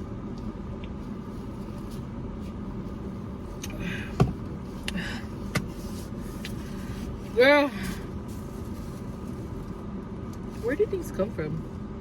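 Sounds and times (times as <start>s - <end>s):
low hum of road traffic: 0.0s - 12.0s
rustling: 5.7s - 9.8s.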